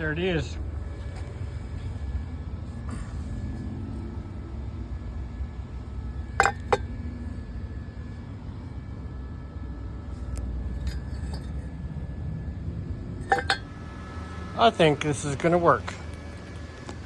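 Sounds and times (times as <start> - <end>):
steady low rumble: 0.0 - 17.0
metal tools clinking: 6.3 - 6.9, 10.2 - 11.8, 13.2 - 13.7.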